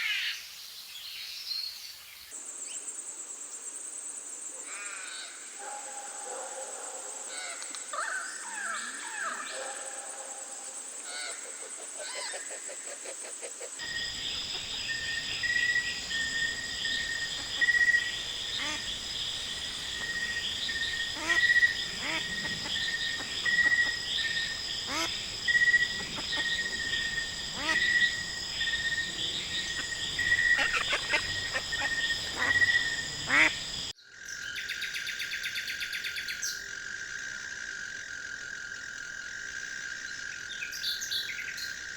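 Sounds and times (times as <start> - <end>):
high insect drone: 13.3 - 41.9
bird calls: 13.8 - 33.9.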